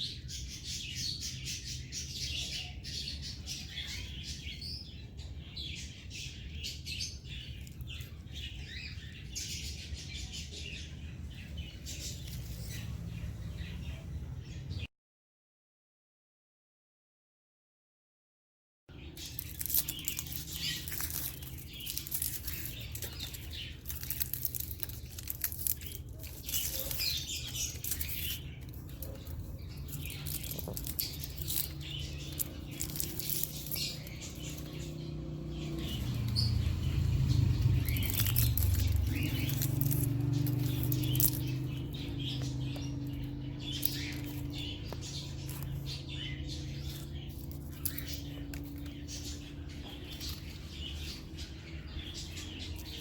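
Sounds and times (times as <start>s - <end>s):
bird chirps: 0.0s - 14.9s, 18.9s - 53.0s
bird rustling and scratching: 19.2s - 35.0s, 37.5s - 53.0s.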